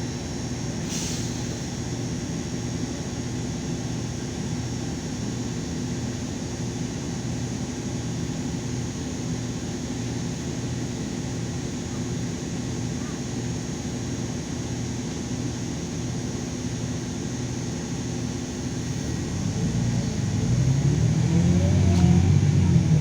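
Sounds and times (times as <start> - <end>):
bus diesel engine droning: 0.0 - 2.3, 16.6 - 23.0
short hiss of air: 0.8 - 1.7.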